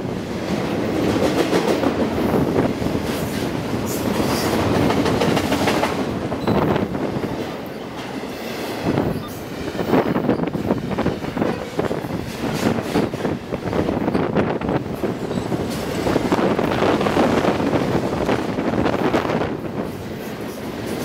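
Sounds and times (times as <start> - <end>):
steel wheels rumbling on rail: 0.0 - 21.0
wheel clatter over rail joints: 9.0 - 19.0.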